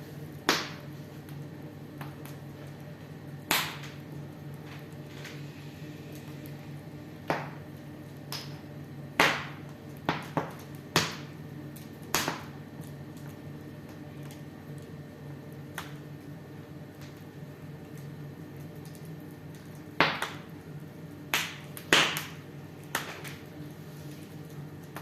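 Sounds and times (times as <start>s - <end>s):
steady low hum: 0.0s - 25.0s
wood fire crackling: 0.0s - 25.0s
sharp fire pops: 0.4s - 0.9s, 3.4s - 4.0s, 7.2s - 11.4s, 12.0s - 12.6s, 19.9s - 20.5s, 21.3s - 23.4s.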